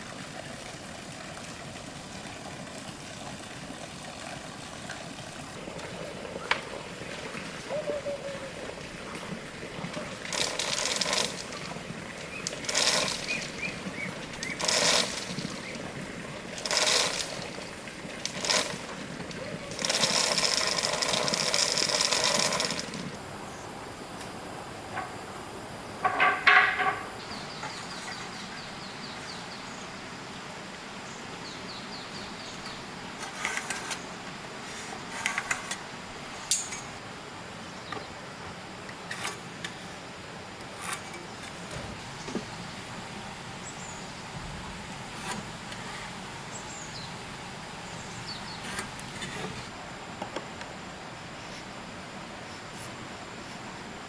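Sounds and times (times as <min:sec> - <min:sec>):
steady background hiss: 0:00.0 - 0:54.0
sharp knocks and clicks: 0:26.0 - 0:27.8.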